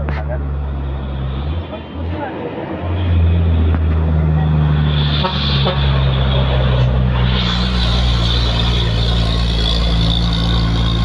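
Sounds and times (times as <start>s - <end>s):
truck engine droning: 0.0s - 11.0s
hiss: 7.3s - 9.4s.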